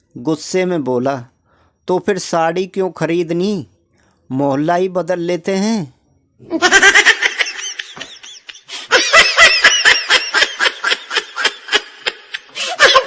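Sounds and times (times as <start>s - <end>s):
person laughing: 6.5s - 13.0s.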